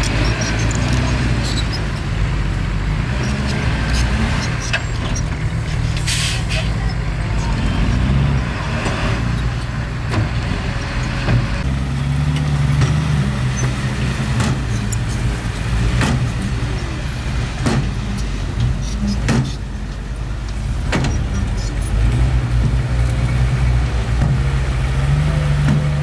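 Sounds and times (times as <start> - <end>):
bulldozer diesel engine running: 0.0 - 26.0
sharp metallic knocks and clanks: 7.4 - 23.5.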